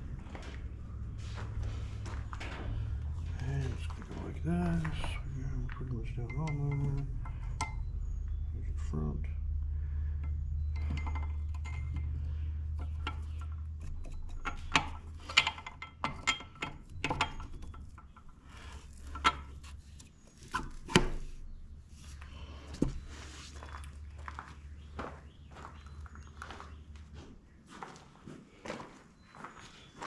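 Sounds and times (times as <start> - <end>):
low steady hum: 0.0 - 27.6
metal tools clinking and knocking: 2.0 - 8.6, 10.2 - 21.7.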